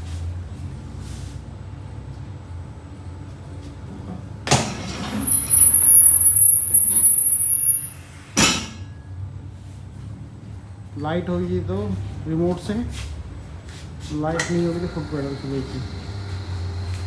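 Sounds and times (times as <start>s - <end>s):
low steady hum: 0.0s - 17.0s
hydraulic lift hissing: 14.0s - 17.0s.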